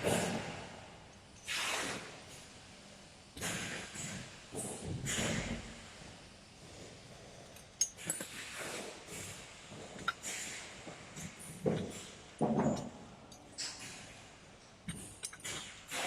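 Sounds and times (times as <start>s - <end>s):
metallic clicks of small parts: 7.6s - 8.4s, 12.8s - 15.9s.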